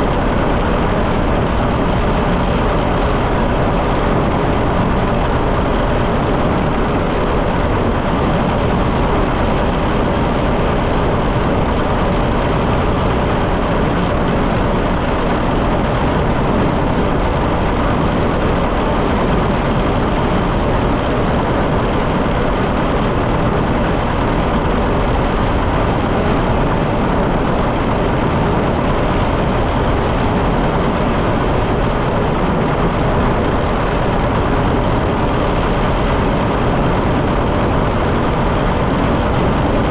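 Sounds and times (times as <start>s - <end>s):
tractor engine running: 0.0s - 20.5s, 33.4s - 39.9s.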